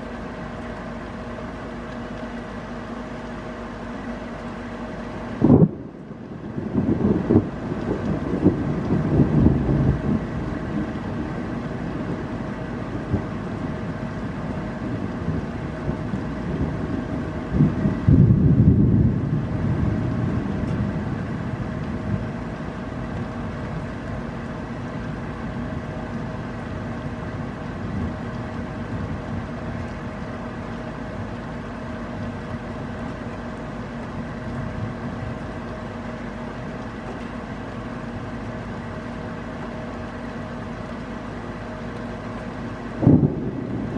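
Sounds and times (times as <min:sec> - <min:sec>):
faint steady hum: 0:00.0 - 0:43.9
steady rain: 0:00.0 - 0:43.9
thunder rumbling: 0:05.4 - 0:38.0, 0:42.2 - 0:43.9.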